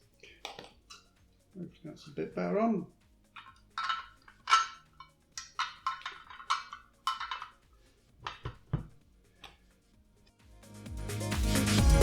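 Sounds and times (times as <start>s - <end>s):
small metal parts clicking: 3.3s - 8.6s.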